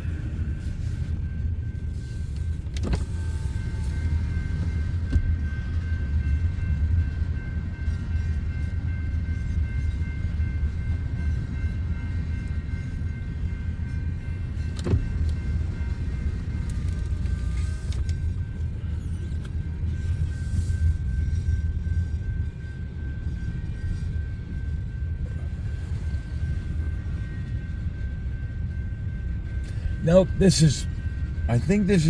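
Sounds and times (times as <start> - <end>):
train rumbling: 0.0 - 32.0.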